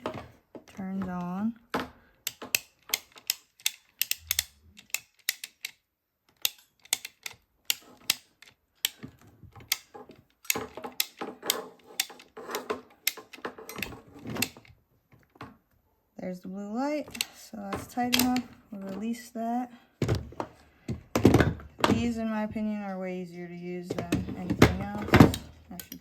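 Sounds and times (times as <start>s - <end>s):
crimping tool clicking: 2.2s - 14.7s, 17.1s - 19.0s.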